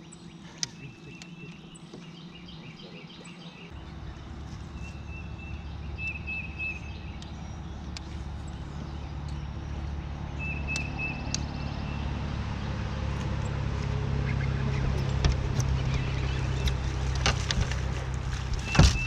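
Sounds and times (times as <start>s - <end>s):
birds chirping: 0.0s - 19.0s
low hum: 0.0s - 19.0s.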